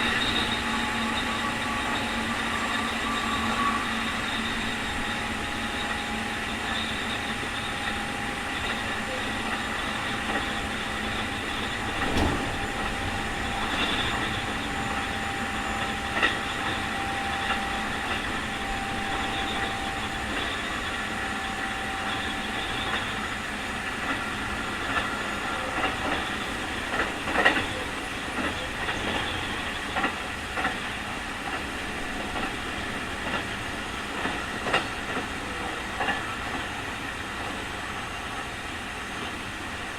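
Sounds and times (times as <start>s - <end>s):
electric train whining: 0.0s - 39.9s
wheels clacking over rail joints: 8.6s - 20.7s, 24.8s - 30.8s.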